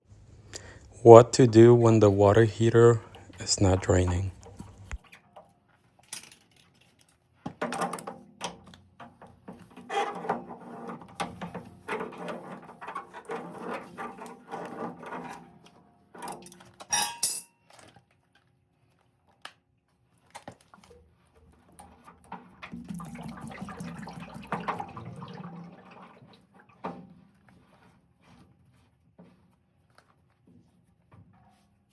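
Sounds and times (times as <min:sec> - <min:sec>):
metal tools clinking: 0:16.2 - 0:17.9
water splashing and gurgling: 0:22.7 - 0:26.8.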